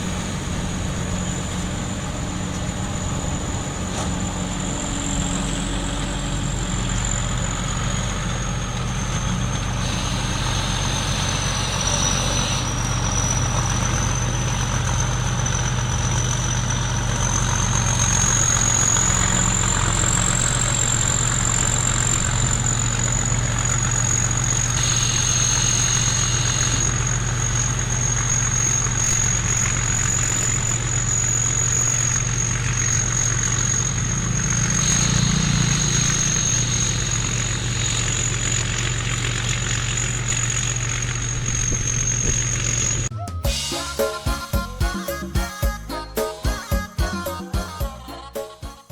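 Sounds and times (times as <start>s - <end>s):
high thin whine: 0.0s - 13.8s, 41.5s - 48.9s
combine harvester engine drone: 0.0s - 48.9s.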